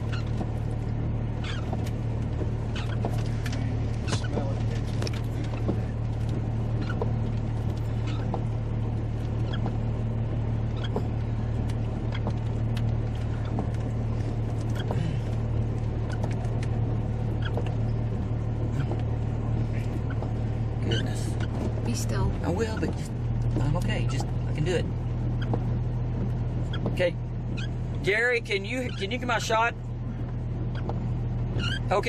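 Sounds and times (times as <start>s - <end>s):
vehicle engine idling: 0.0s - 32.0s
light ticks: 10.8s - 15.4s.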